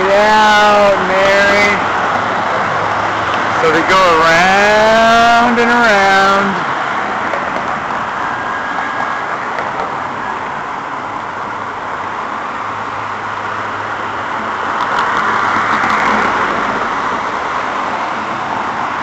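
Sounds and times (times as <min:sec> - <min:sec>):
road traffic noise: 0:00.0 - 0:19.0
vehicle passing: 0:12.5 - 0:19.0.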